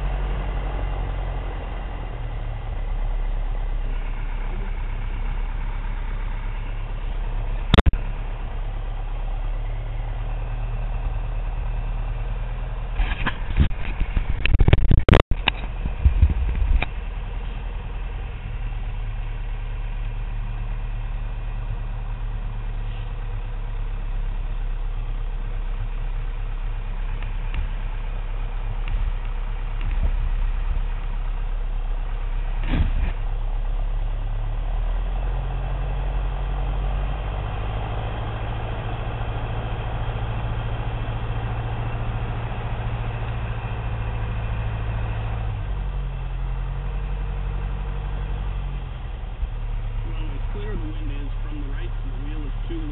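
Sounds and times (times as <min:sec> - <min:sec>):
propeller engine from inside cabin: 0:48.4 - 0:52.9.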